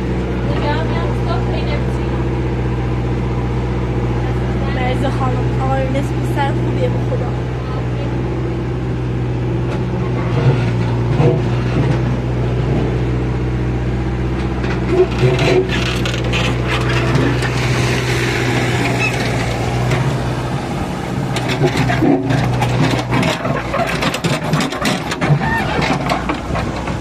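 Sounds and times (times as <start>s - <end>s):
digger diesel engine running: 0.0s - 27.0s
knocks and clatter: 9.6s - 13.0s, 14.3s - 20.2s, 21.2s - 27.0s.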